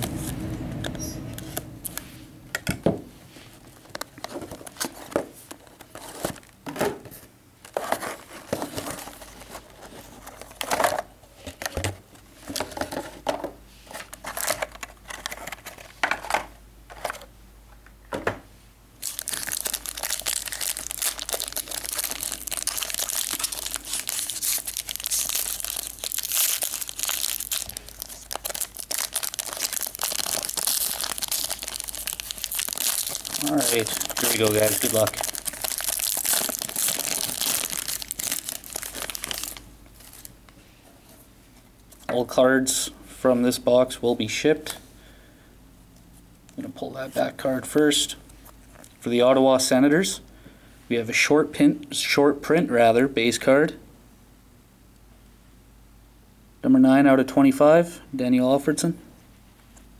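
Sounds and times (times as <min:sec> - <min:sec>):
plastic wrapping tearing and crinkling: 0:19.0 - 0:40.3.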